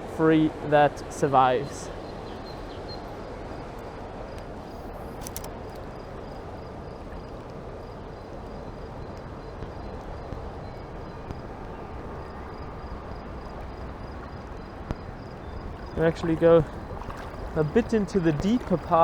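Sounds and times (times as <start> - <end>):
faint click: 3.8 - 5.9
fast-flowing stream rushing: 15.6 - 19.0.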